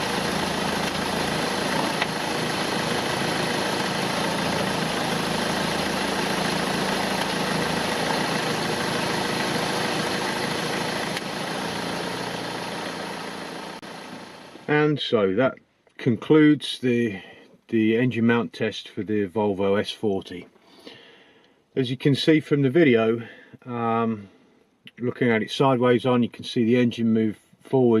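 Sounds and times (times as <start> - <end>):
car engine idling: 0.0 - 14.7.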